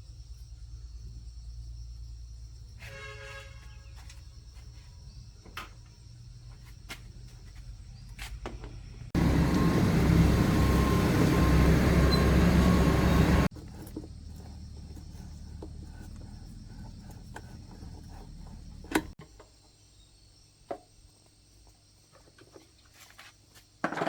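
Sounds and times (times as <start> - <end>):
loud machine noise: 9.2 - 13.5.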